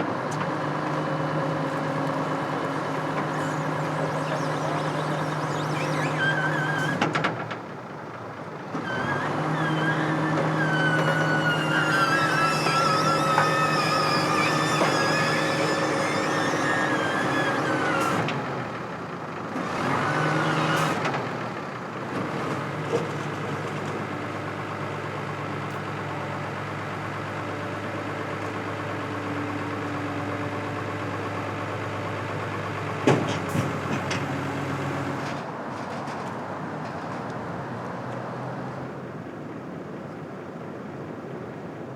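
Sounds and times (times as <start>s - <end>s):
engine running steadily: 0.0s - 36.2s
high wavering whine: 2.7s - 7.0s, 10.7s - 17.8s.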